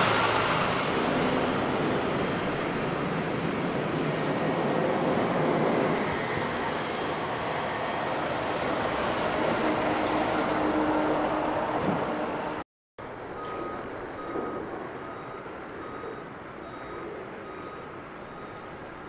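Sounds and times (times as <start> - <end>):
vehicle traffic rumble: 0.0 - 19.0
distant backup alarm beeping: 13.2 - 19.0.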